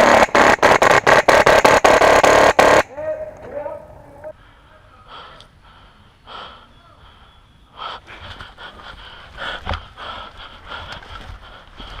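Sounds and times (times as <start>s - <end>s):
person breathing hard: 4.3s - 12.0s.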